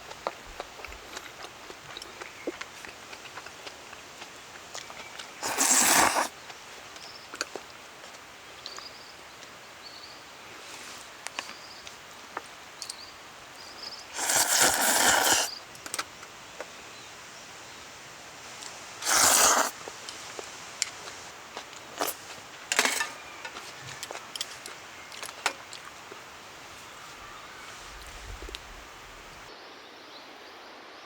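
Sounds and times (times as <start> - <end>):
loud scraping noise: 19.0 - 19.8
faint bird chirps: 26.7 - 30.5.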